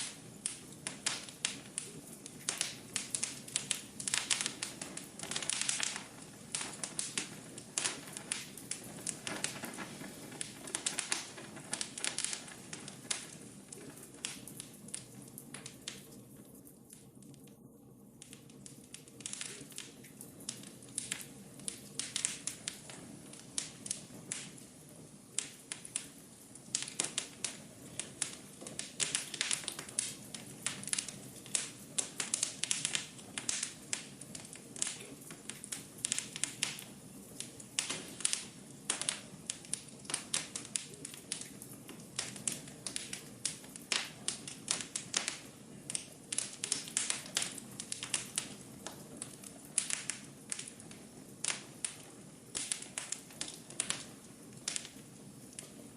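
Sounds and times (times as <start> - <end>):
rush of flame: 0.0 - 16.2
wood fire crackling and popping: 0.0 - 55.9.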